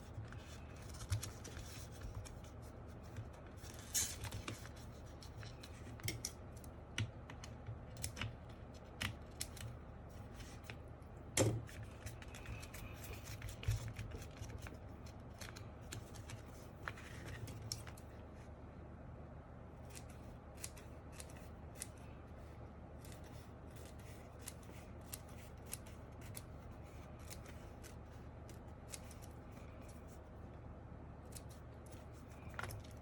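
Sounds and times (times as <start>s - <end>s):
steady low hum: 0.0s - 33.0s
handling rustles and clicks: 31.3s - 33.0s.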